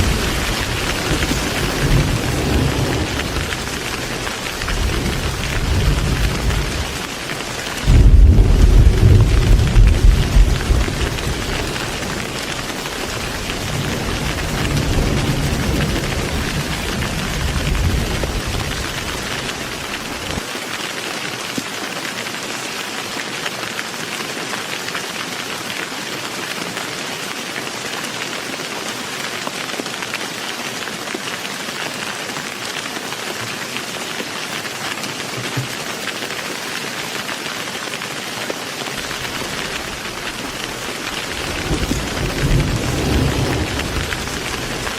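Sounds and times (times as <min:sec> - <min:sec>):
rolling thunder rumble: 0:00.0 - 0:20.4, 0:39.1 - 0:44.9
heavy rain falling: 0:00.0 - 0:44.9.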